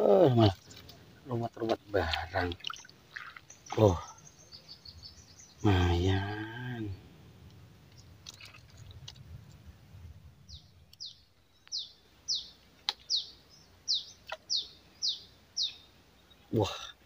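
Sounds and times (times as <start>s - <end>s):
small bird chirping: 2.5s - 6.4s, 10.4s - 16.6s.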